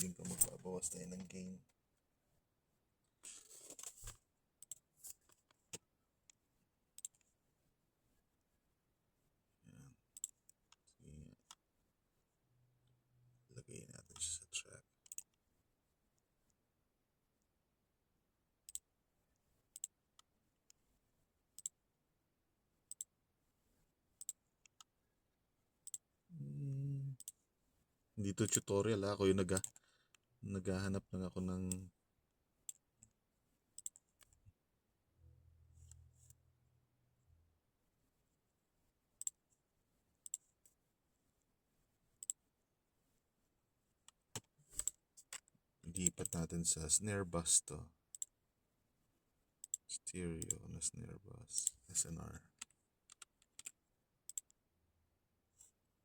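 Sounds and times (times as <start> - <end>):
computer mouse clicking: 4.6 - 5.8, 7.0 - 7.3, 10.2 - 10.8, 15.0 - 15.4, 19.7 - 20.3, 21.6 - 21.8, 24.2 - 24.9, 25.8 - 26.0, 33.8 - 34.4, 40.2 - 40.5, 42.2 - 42.4, 44.1 - 46.5, 48.1 - 48.3, 52.6 - 54.6.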